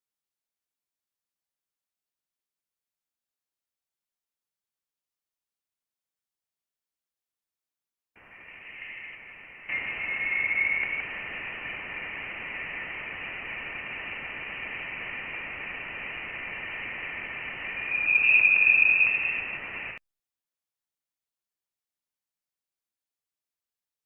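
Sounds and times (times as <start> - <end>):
thin high whistling tone: 8.2 - 12.8, 16.7 - 20.0
steady hiss: 8.2 - 20.0.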